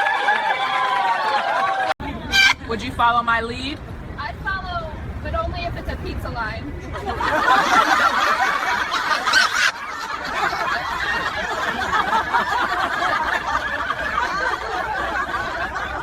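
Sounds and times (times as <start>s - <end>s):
people laughing and snickering: 6.9s - 16.0s.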